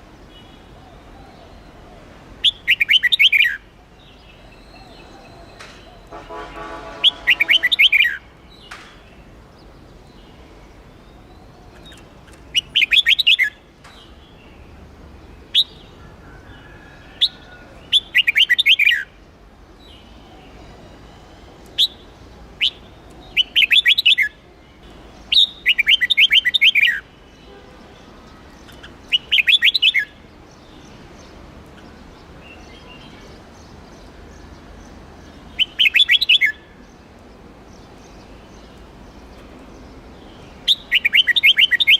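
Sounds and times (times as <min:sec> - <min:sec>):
bird warbling song: 0:00.3 - 0:14.7, 0:15.4 - 0:19.2, 0:19.8 - 0:37.0, 0:37.7 - 0:41.9
sharp bird chirps: 0:28.7 - 0:30.1.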